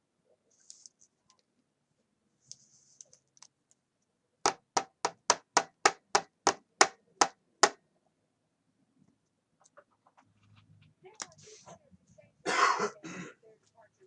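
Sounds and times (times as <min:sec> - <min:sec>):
sharp knocks: 0:04.5 - 0:07.8.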